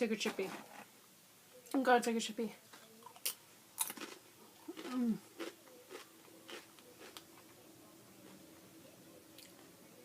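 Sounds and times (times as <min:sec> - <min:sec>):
faint room hum: 0:00.0 - 0:10.0
chip crunching while chewing: 0:03.0 - 0:07.6.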